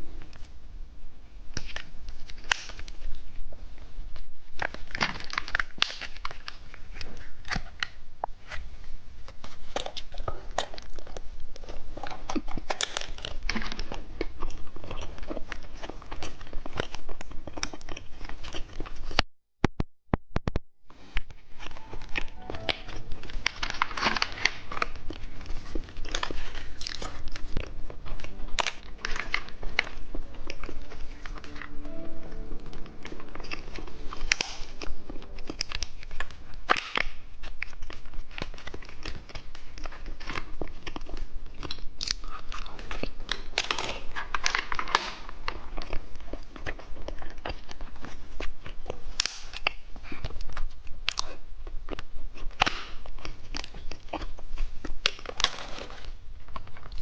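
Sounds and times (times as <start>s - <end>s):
plastic wrapper crinkling and tearing: 1.5s - 3.4s, 4.2s - 8.6s, 21.2s - 32.5s, 33.4s - 57.0s.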